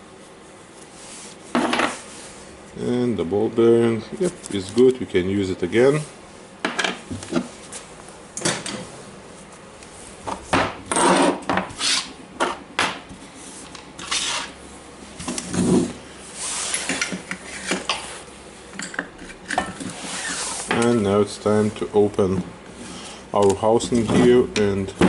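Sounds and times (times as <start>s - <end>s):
metal scraping and rubbing: 14.0s - 14.6s.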